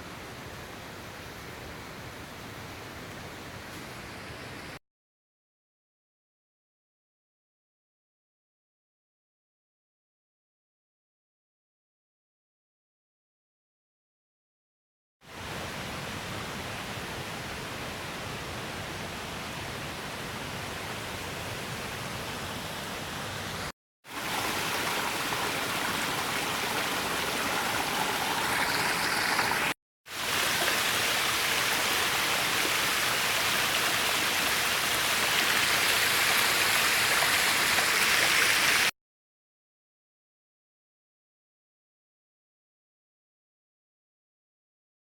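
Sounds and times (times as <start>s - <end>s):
waterfall rushing: 24.1s - 38.9s.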